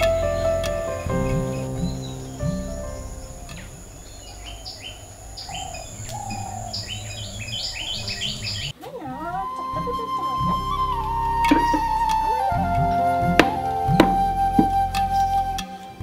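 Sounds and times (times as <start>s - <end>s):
flute music: 0.0s - 3.9s, 8.9s - 16.0s
bird chirping: 0.0s - 8.8s.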